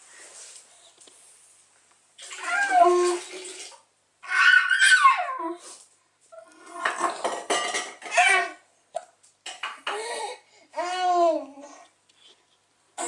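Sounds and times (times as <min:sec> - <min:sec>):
child making high-pitched vocal noises: 0:02.4 - 0:03.3, 0:04.2 - 0:05.8, 0:09.9 - 0:11.8.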